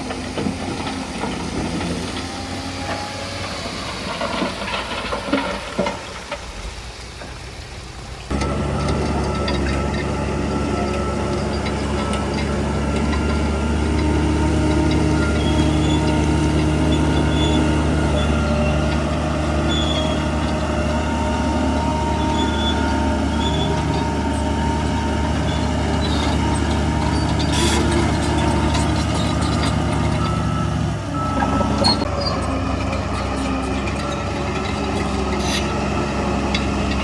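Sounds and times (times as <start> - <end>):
heavy diesel engine running: 7.7 - 37.0.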